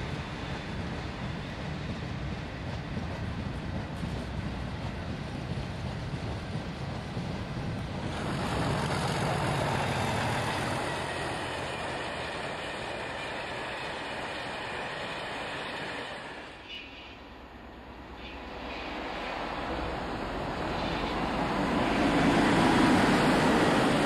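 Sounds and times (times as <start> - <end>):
diesel locomotive passing: 0.0 - 24.0
freight wagons rolling by: 8.1 - 12.2.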